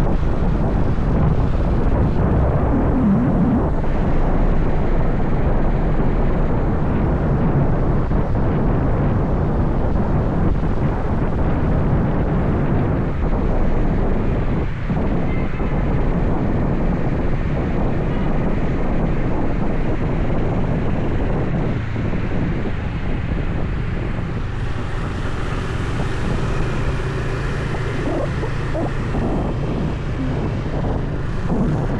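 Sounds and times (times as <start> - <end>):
wind rushing on microphone: 0.0 - 31.9
road noise: 19.8 - 31.9
motorbike engine: 23.7 - 31.9.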